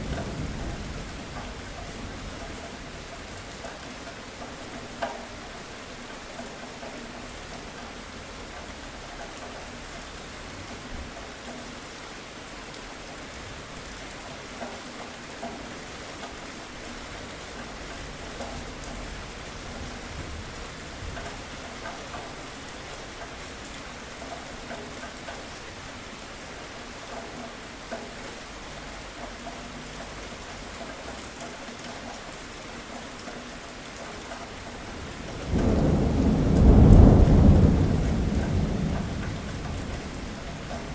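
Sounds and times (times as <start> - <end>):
raindrop ticks: 0.0 - 40.9
steady rain falling: 0.0 - 40.9
thunder rumbling: 34.8 - 40.9.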